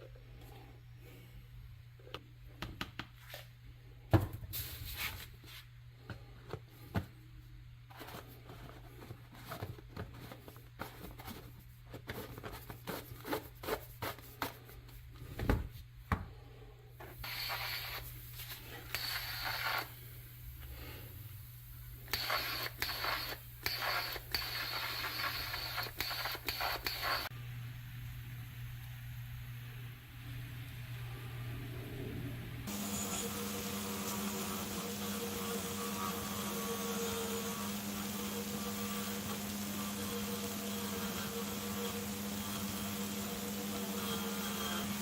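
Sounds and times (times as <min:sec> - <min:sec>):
scraping hiss: 0:17.0 - 0:27.3.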